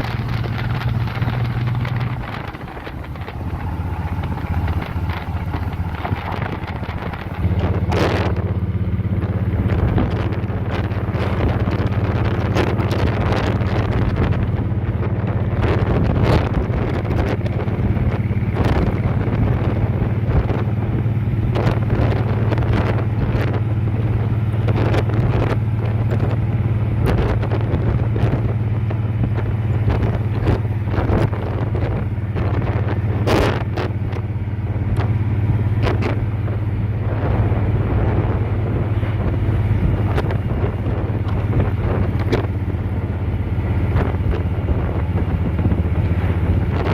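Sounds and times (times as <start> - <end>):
motorcycle engine cruising: 0.0 - 46.9
wind buffeting microphone: 0.0 - 46.9.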